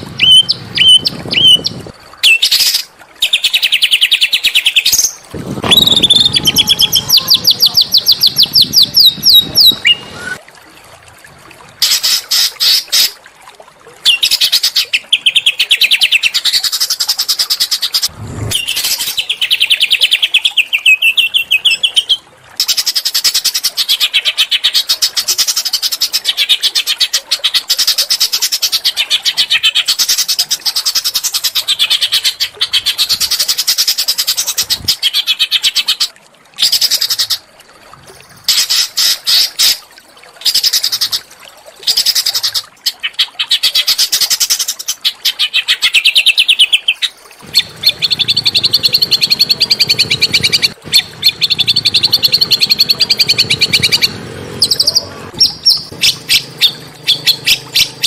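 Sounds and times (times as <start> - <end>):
low hum: 18.1 - 18.9, 47.5 - 58.0
songbird rapid high trills: 47.4 - 58.0.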